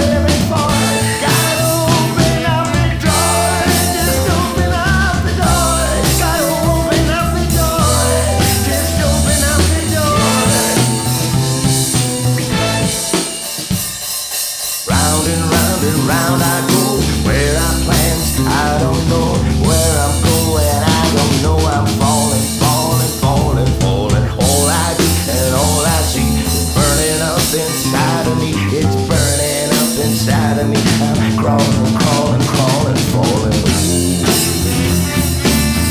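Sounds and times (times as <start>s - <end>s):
bass guitar: 0.0s - 35.9s
drum kit: 0.0s - 35.9s
wavering lead melody: 3.0s - 13.7s.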